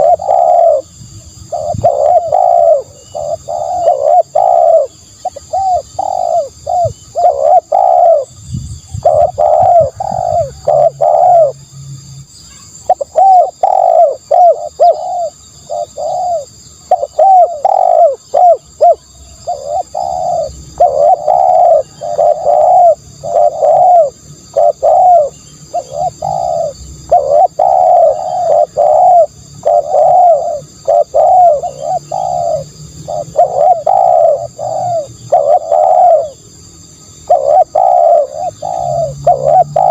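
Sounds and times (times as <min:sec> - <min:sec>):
dove cooing: 0:00.0 - 0:08.3, 0:09.0 - 0:11.6, 0:12.8 - 0:36.5, 0:37.1 - 0:39.9.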